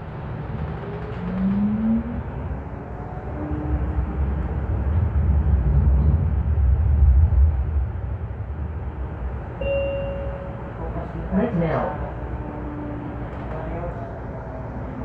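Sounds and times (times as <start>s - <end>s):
light rail train rumble: 0.0s - 15.0s
brief steady tone: 9.6s - 10.7s.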